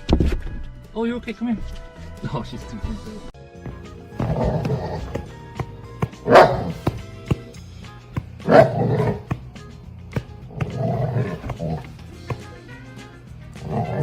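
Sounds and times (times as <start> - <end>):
background music with steady beat: 2.3 - 14.0
animal making rough low calls: 3.7 - 7.2, 8.4 - 9.4, 10.4 - 12.4, 13.4 - 14.0.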